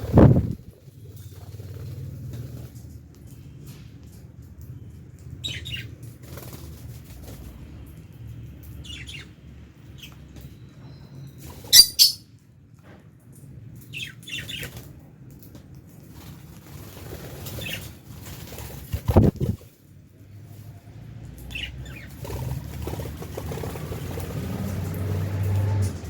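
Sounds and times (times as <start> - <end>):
lovebirds chirping: 11.7 - 12.2.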